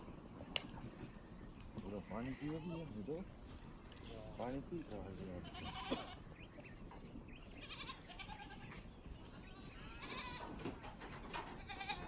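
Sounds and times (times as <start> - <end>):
goats bleating: 5.3 - 6.2, 7.6 - 8.8, 9.4 - 10.6, 11.6 - 12.0.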